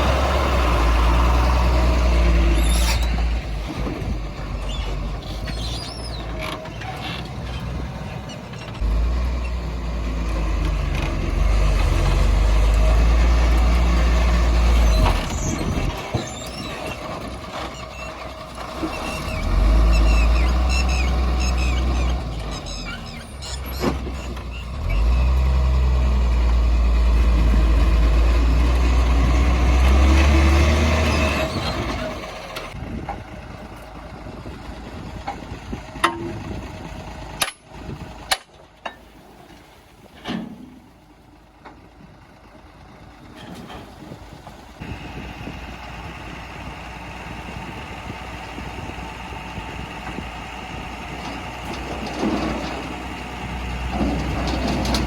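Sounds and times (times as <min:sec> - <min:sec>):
diesel engine revving: 0:00.0 - 0:38.3, 0:42.1 - 0:55.0
high squeaks: 0:02.4 - 0:03.4, 0:04.6 - 0:08.8, 0:14.8 - 0:25.1.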